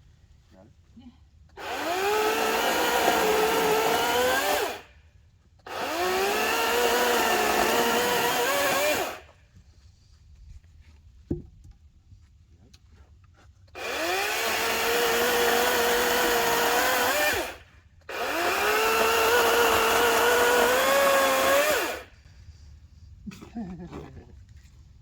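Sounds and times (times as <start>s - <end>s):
electric chainsaw whining: 1.6s - 4.9s, 5.6s - 9.3s, 13.8s - 22.1s.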